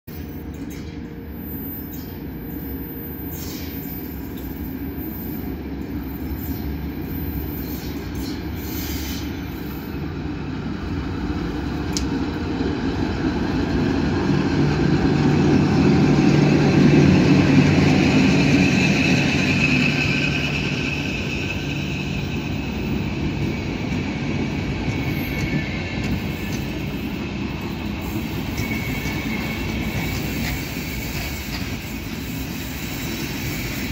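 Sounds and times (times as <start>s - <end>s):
electric locomotive passing: 0.1s - 33.9s
wheel and rail noise: 0.1s - 33.9s
high wheel squeal: 1.3s - 10.1s, 16.9s - 33.9s.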